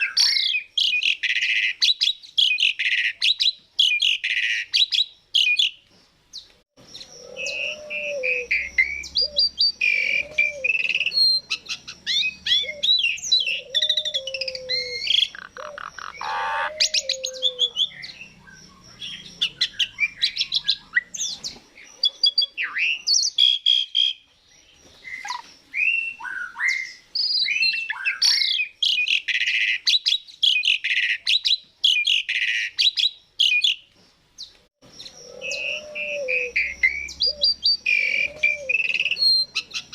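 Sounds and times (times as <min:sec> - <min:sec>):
starling singing: 0:06.8 - 0:24.2, 0:34.8 - 0:39.9.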